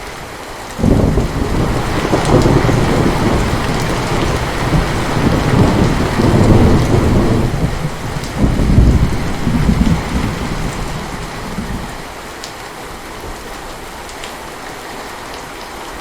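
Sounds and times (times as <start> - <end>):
heavy rain pouring: 0.0 - 16.0
thunder rumbling: 0.8 - 12.1.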